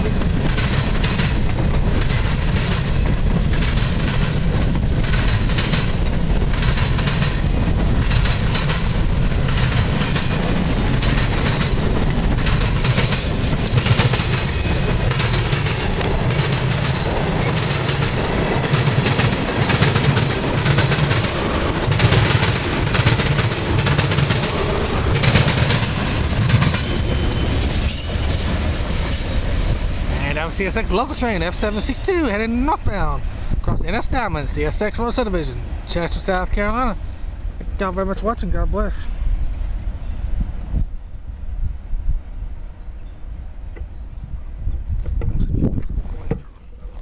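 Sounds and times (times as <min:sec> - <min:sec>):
freight train wheels clattering: 0:00.0 - 0:32.0.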